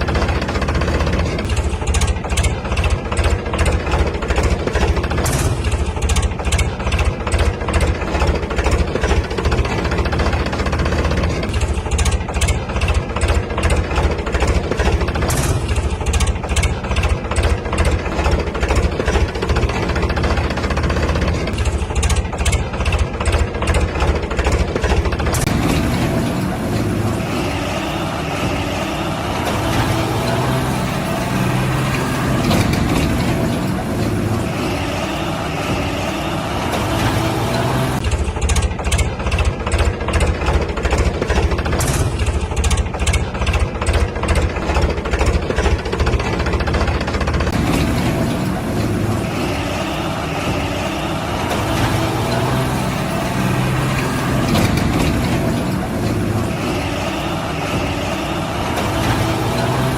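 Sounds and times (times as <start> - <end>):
heavy vehicle engine humming: 0.0 - 59.9.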